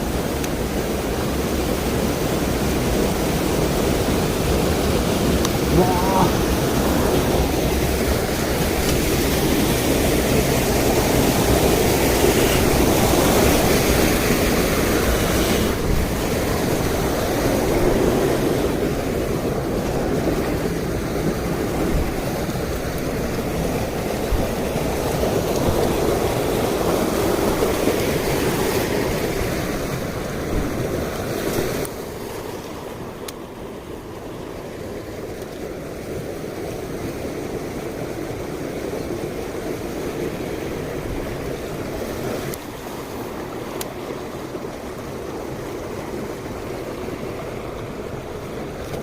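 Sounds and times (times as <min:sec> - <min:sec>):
stream rushing over rocks: 0:00.0 - 0:49.0.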